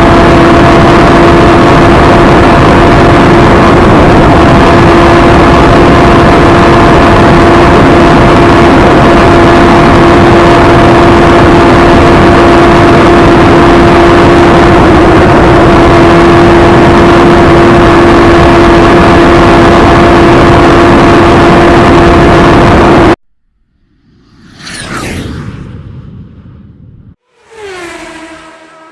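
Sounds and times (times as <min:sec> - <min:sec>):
motorbike engine at high revs: 0:27.2 - 0:28.9.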